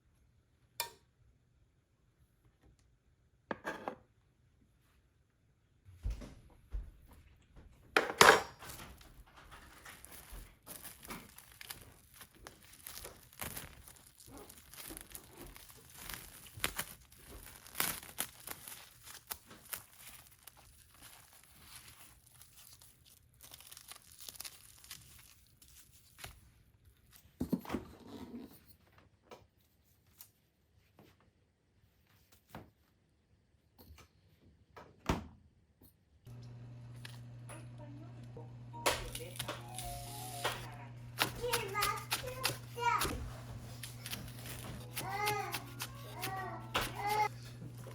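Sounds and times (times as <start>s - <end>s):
plastic crinkling and rustling: 8.6s - 27.4s, 39.0s - 47.9s.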